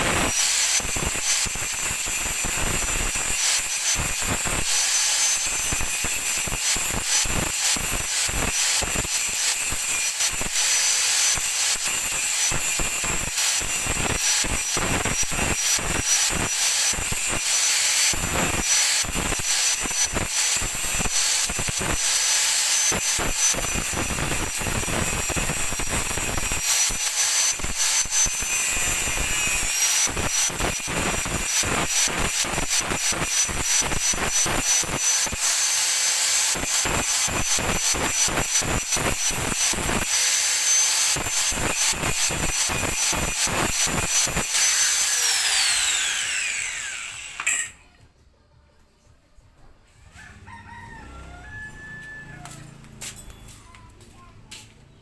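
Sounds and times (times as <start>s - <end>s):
welding arc sizzling and crackling: 0.0s - 48.0s.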